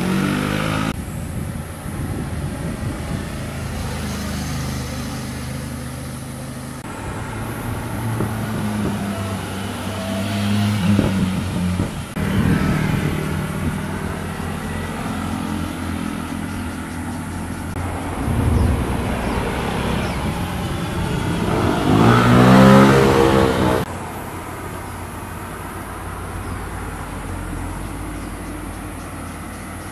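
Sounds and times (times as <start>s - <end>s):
motorcycles passing and revving: 0.0s - 29.9s.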